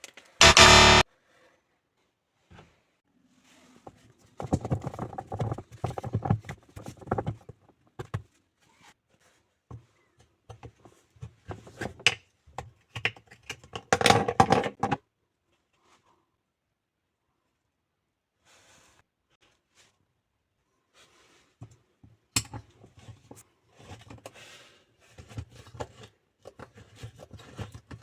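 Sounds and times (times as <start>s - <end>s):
hard objects clattering and knocking: 4.4s - 8.2s, 13.0s - 15.0s.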